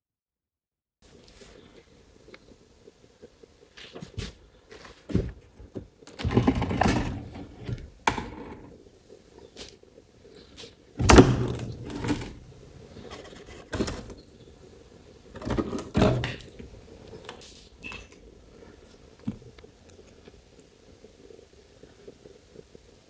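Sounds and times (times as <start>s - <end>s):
irregular knocks and clunks: 5.1s - 8.8s, 11.0s - 14.2s, 15.3s - 16.7s.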